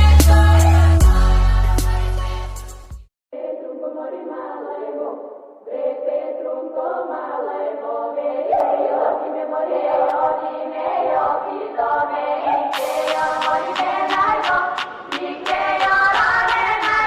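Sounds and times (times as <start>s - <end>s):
choir singing: 0.0s - 2.7s, 3.3s - 17.0s
music with a beat: 0.0s - 3.1s, 12.7s - 17.0s.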